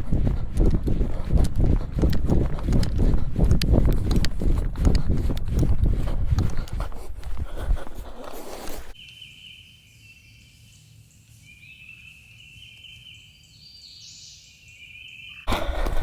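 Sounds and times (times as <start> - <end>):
faint low rumble: 0.0 - 7.9.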